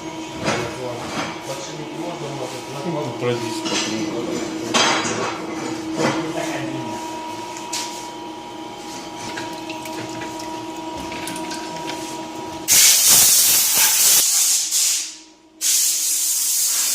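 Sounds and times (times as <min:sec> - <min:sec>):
loud hiss: 0:12.7 - 0:16.9.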